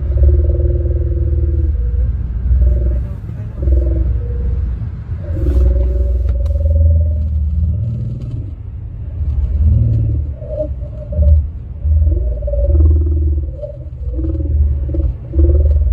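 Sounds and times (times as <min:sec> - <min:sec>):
car rumbling on road: 0:00.0 - 0:15.9
moaning tones from car radio: 0:00.0 - 0:15.9.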